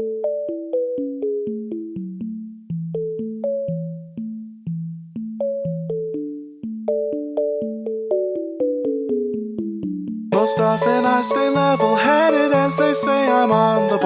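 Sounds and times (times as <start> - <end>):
electric piano melody: 10.3 - 14.0.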